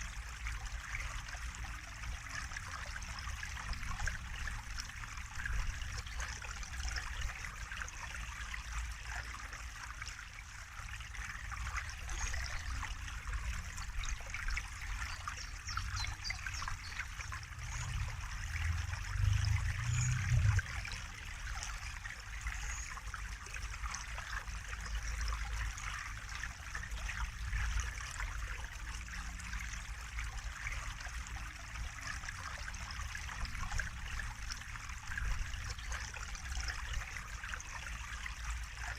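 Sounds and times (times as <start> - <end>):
water trickling and splashing: 0.0 - 38.9
low rumble: 17.3 - 21.0.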